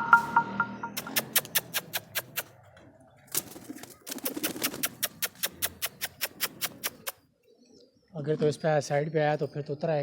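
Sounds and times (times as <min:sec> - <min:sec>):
pigeons cooing: 0:01.0 - 0:07.8.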